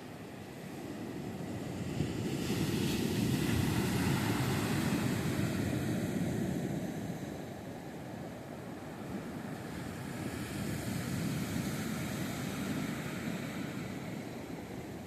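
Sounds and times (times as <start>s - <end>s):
wave breaking on beach: 1.4s - 7.0s.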